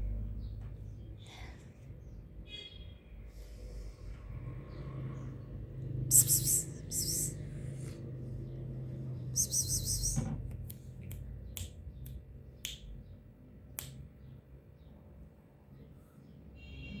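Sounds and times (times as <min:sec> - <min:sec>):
short high-pitched burst: 0:06.1 - 0:07.4.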